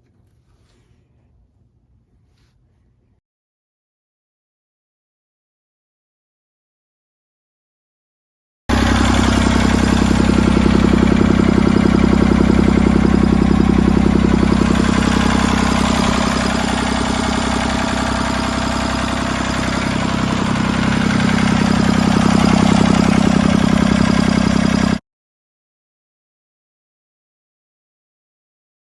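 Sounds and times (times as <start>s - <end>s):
tractor diesel engine idling: 8.7s - 25.0s.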